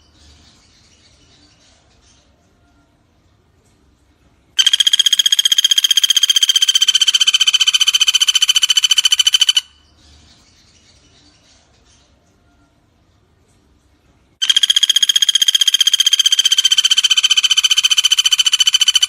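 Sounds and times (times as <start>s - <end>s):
woodpecker trill: 4.6s - 9.9s, 14.4s - 19.0s.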